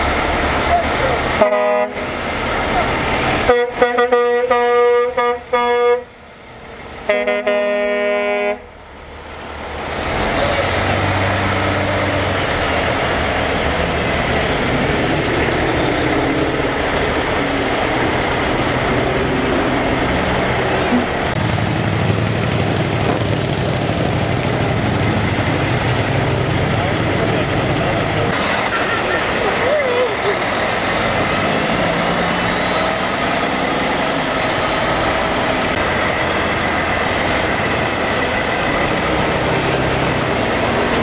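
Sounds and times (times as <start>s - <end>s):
diesel engines of passing trucks: 0.0s - 41.0s
low-pitched horn blast: 0.7s - 2.2s, 3.4s - 6.2s, 7.1s - 8.8s
truck air horn blasts: 1.3s - 2.2s, 3.4s - 6.2s, 7.0s - 8.8s.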